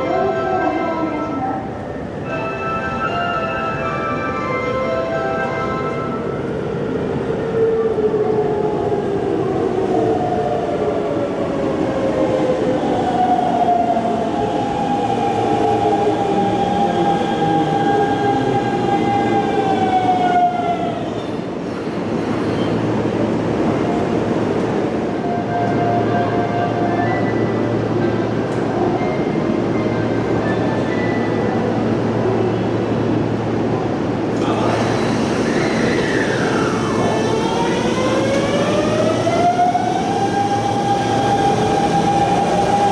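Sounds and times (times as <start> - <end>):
train running noise: 21.1 - 42.9
electric train motors whining: 34.3 - 42.9.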